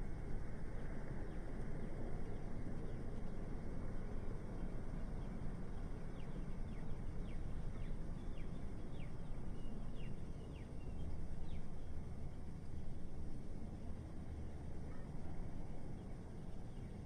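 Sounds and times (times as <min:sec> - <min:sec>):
low city traffic rumble: 0:00.0 - 0:17.0.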